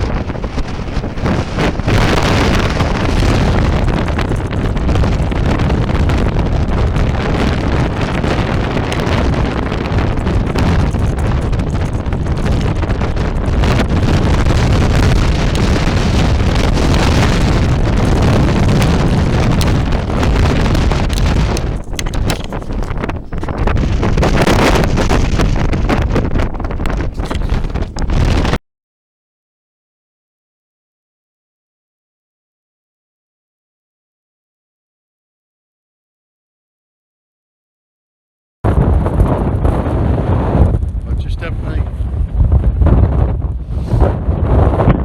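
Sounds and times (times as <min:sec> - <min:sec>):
wind buffeting microphone: 0:00.0 - 0:28.6, 0:38.7 - 0:45.0.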